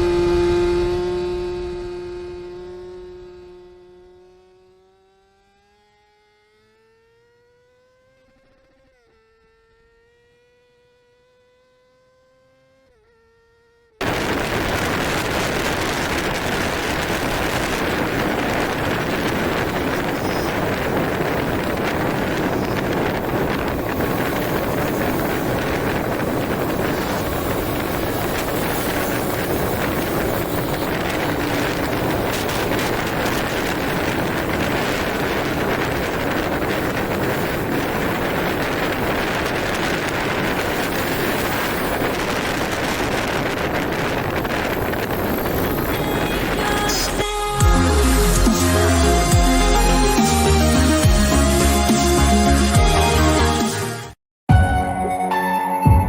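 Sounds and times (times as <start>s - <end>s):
motorcycle engine revving: 0.0s - 47.2s
wind buffeting microphone: 14.0s - 47.2s.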